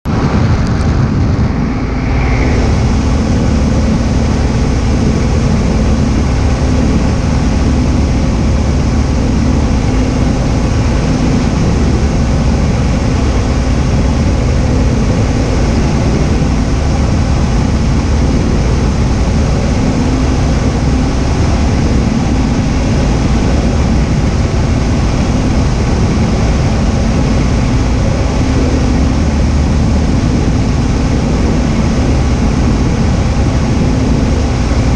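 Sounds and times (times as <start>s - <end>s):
propeller plane engine droning: 0.0s - 34.9s.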